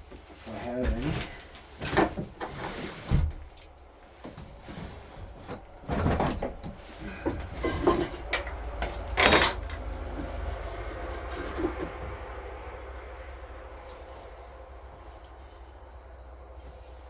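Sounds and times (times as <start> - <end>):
objects knocking and clattering: 5.2 - 10.3
sharp metallic clank: 9.2 - 9.8.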